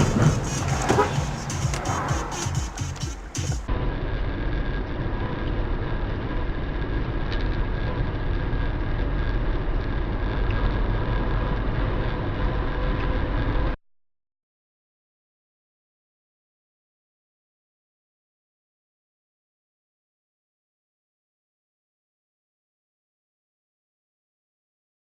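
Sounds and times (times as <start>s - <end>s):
car engine and road noise: 0.0s - 13.8s.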